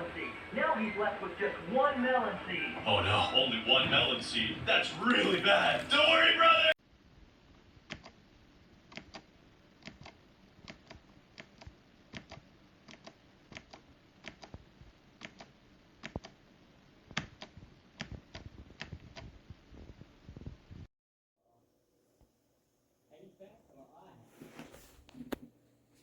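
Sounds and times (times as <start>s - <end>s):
mechanical keyboard clicks: 7.9s - 8.2s, 8.9s - 14.6s, 15.2s - 16.4s, 17.1s - 19.3s.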